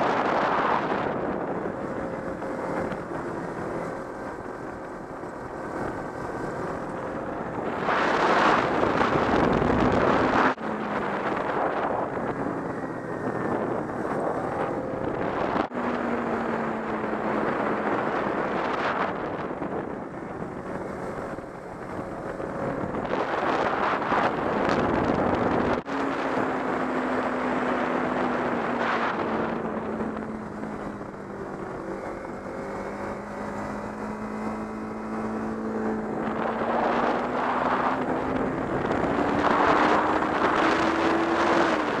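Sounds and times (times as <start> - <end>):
motorcycle engine running: 0.0 - 42.0
wind noise on microphone: 0.0 - 42.0.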